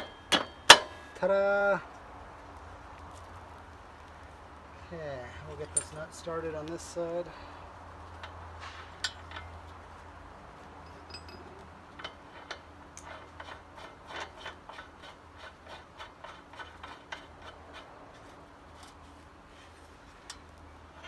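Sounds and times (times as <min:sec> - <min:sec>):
metallic clicks of axle nut: 0:00.0 - 0:01.1, 0:08.1 - 0:09.8, 0:10.8 - 0:19.0.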